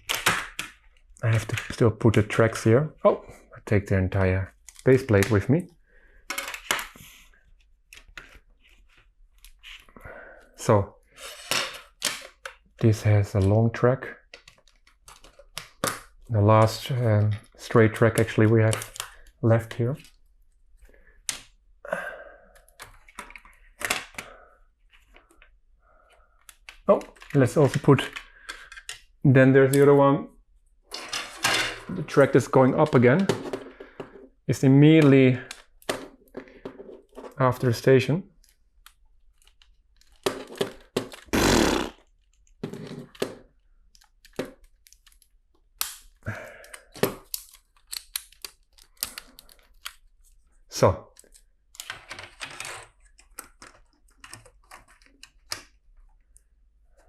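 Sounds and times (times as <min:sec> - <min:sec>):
plastic pieces rattling and scraping: 0:39.3 - 0:41.3, 0:51.2 - 0:55.6.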